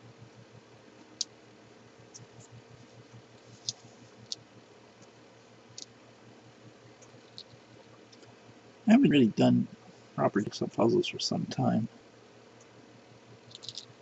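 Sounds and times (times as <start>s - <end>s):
faint steady hum: 0.0s - 14.0s
puzzle pieces clicking and tapping: 13.5s - 13.8s.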